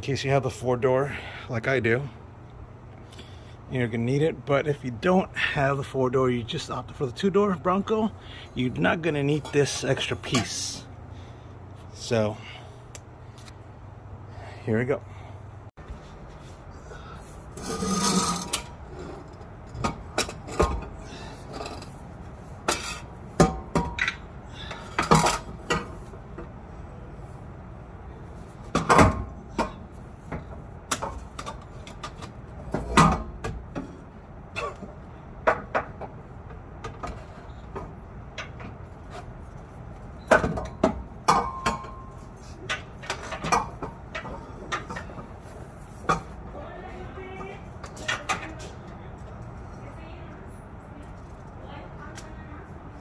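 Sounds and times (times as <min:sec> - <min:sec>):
metal exhaust pipe clanking: 0:17.5 - 0:22.0, 0:40.3 - 0:45.3.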